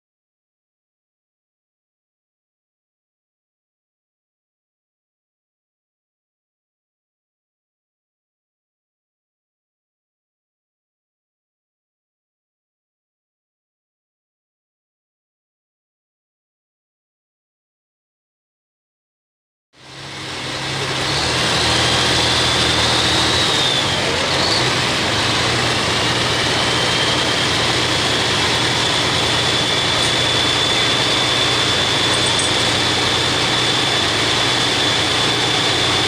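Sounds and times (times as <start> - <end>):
loud diesel engine running: 19.8 - 36.0
high turbo whistle: 19.9 - 36.0.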